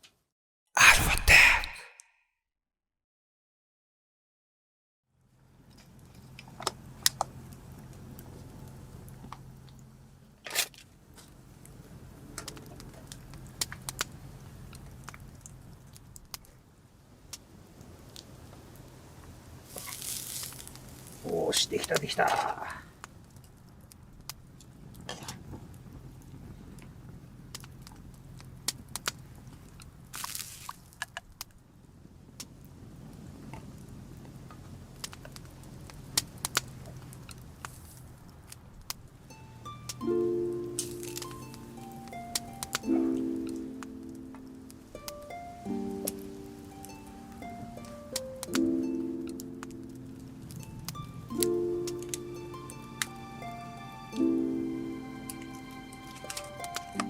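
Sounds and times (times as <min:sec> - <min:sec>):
campfire crackling and popping: 0:18.1 - 0:21.2, 0:23.0 - 0:31.6, 0:32.3 - 0:39.1.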